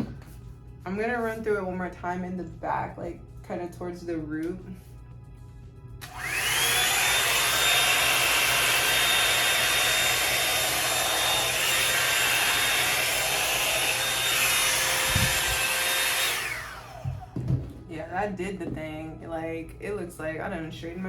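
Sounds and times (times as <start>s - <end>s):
hair dryer running: 6.0s - 17.8s.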